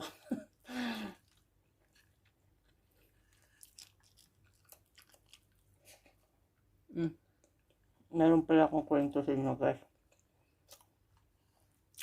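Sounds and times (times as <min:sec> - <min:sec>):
wet chewing and mouth smacks: 0:01.2 - 0:06.3, 0:10.0 - 0:12.0.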